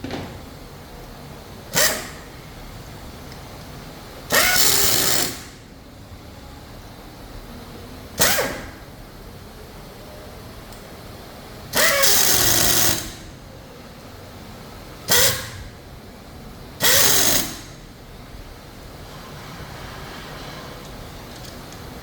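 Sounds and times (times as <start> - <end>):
factory background hum: 0.0 - 22.0
pneumatic tool air hiss: 1.7 - 2.3, 4.3 - 5.6, 8.2 - 8.8, 11.7 - 13.3, 15.1 - 15.7, 16.8 - 17.8.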